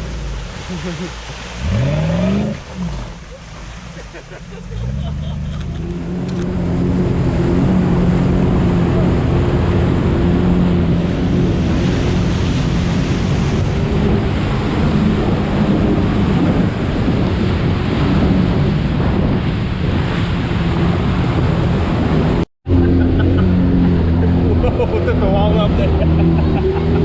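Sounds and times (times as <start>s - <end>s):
vehicle engine under load: 0.0s - 16.4s
water splashing: 0.0s - 27.0s
wind buffeting microphone: 5.6s - 27.0s.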